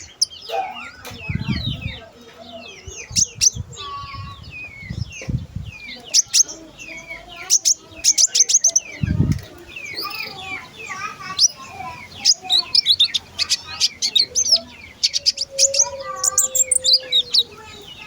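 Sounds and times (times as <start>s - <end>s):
songbird chirping and whistling: 0.0s - 18.0s
low thuds: 3.1s - 5.8s.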